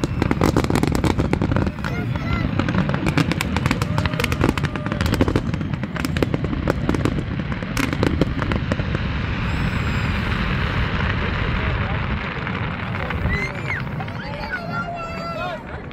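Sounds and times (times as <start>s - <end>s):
firework bangs: 0.0s - 15.9s
fireworks crackling and popping: 0.0s - 15.9s.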